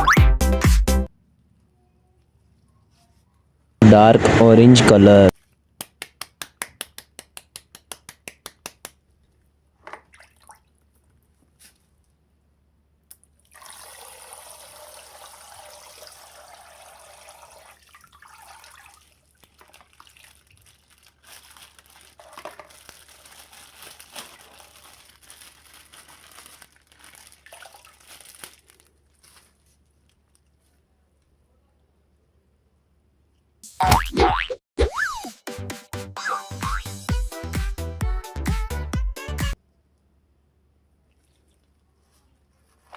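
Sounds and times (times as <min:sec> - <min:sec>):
water rushing out of bag: 0:13.5 - 0:29.6
plastic bag crinkling: 0:19.3 - 0:30.8.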